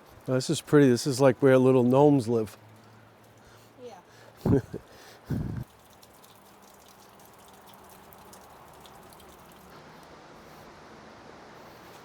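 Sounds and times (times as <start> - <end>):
water dripping: 5.6 - 9.8.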